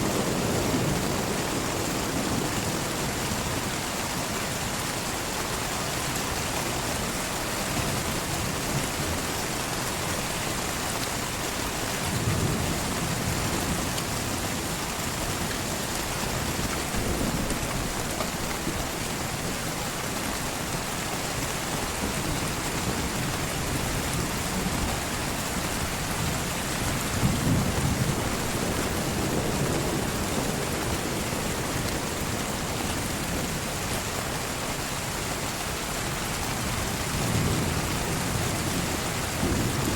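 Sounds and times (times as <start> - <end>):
heavy rain: 0.0 - 39.9
thunder rolling: 21.9 - 33.6.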